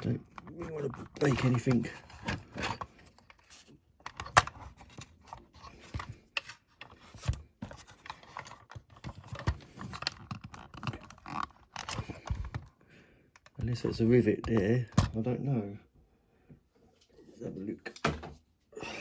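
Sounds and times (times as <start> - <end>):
plastic clicks and creaks: 0.0 - 15.3.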